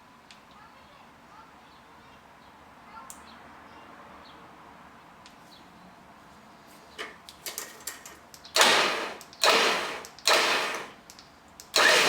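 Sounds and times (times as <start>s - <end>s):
cable and hardware clicks: 7.3s - 12.0s
winch motor bursts: 8.6s - 11.0s, 11.7s - 12.0s.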